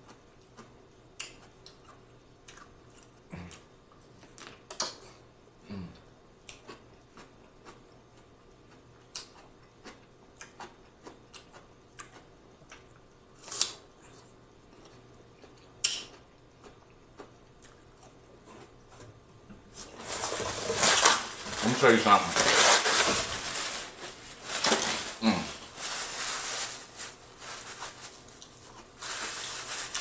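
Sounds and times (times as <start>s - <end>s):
chewing and lip smacking: 0.0s - 5.0s, 6.4s - 13.0s, 14.8s - 19.1s
rustling: 19.7s - 30.0s.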